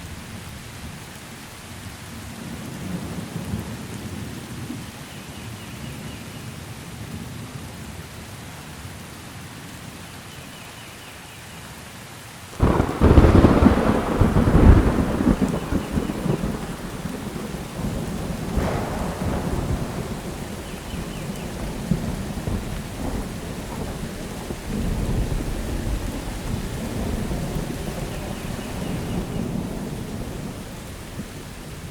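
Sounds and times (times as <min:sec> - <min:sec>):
steady rain: 0:00.0 - 0:31.9
thunder clap and rumbling: 0:12.6 - 0:31.9.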